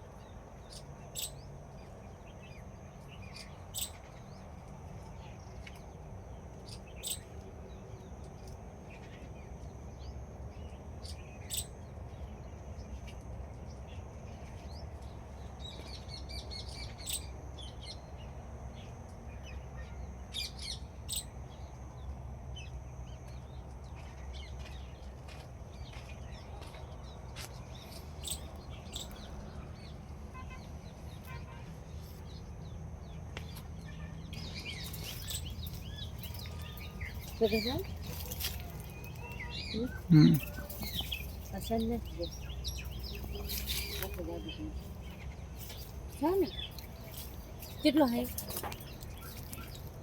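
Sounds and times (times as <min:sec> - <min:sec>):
low outdoor rumble: 0:00.0 - 0:50.0
birds chirping: 0:22.6 - 0:50.0.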